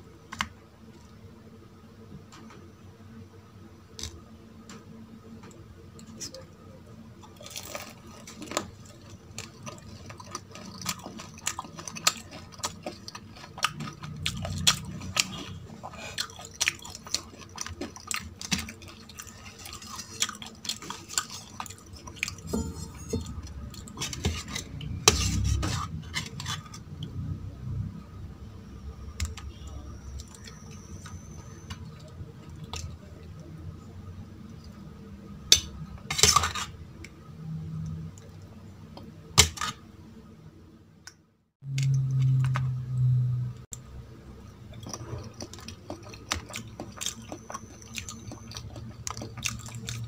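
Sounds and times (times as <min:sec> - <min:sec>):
chewing with sharp crunches: 0:07.2 - 0:22.6, 0:44.7 - 0:50.0
dishes clinking: 0:22.4 - 0:23.8.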